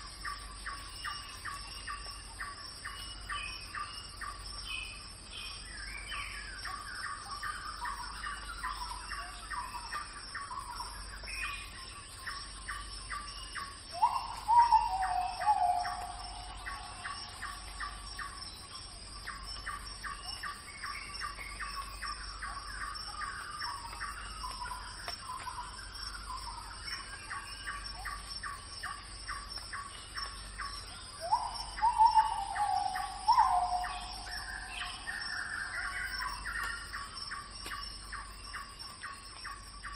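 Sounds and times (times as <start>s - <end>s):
birds chirping: 0.2s - 39.9s.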